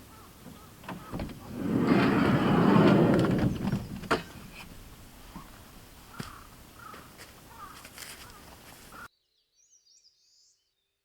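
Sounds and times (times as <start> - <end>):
sliding door running on track: 0.8 - 4.5.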